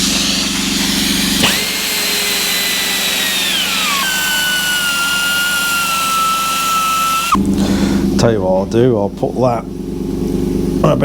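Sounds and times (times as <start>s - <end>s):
belt grinder whine: 0.0s - 7.7s.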